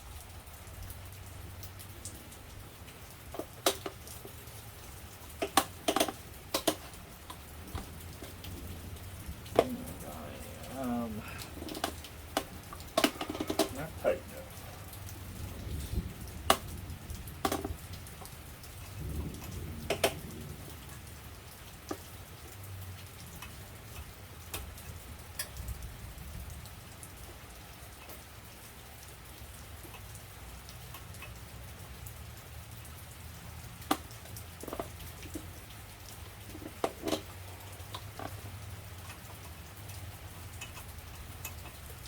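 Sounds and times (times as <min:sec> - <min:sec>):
steady rain on a surface: 0:00.0 - 0:42.0
sharp clicks and knocks: 0:03.3 - 0:04.4, 0:05.4 - 0:08.6, 0:11.5 - 0:13.8, 0:17.4 - 0:18.3, 0:19.4 - 0:20.2.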